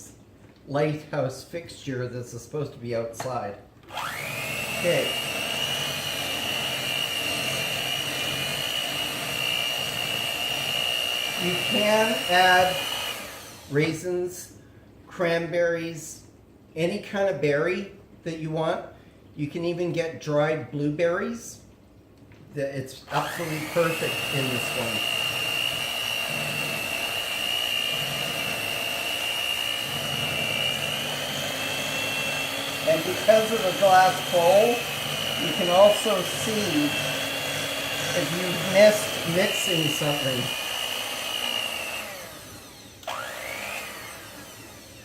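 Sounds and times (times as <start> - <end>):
electric hand mixer whining: 3.9 - 13.8, 23.1 - 45.0.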